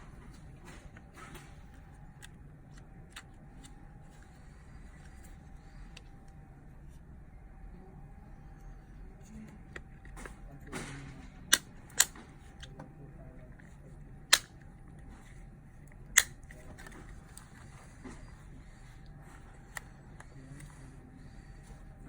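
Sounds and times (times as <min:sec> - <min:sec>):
sharp mechanical clicks: 0:11.5 - 0:12.2.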